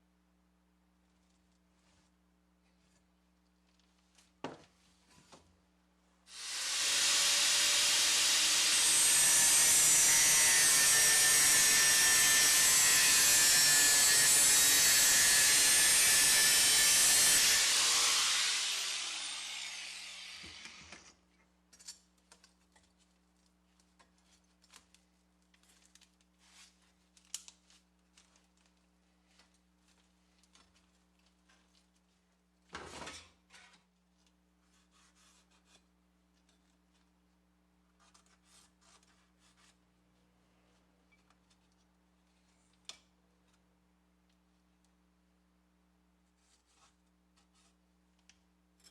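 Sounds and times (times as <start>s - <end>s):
power tool grinding: 6.4s - 20.8s.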